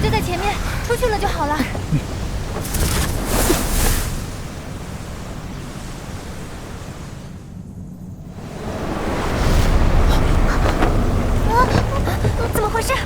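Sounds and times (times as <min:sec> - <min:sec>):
storm wind rushing rumble: 0:00.0 - 0:13.0
wind whoosh: 0:02.1 - 0:11.8.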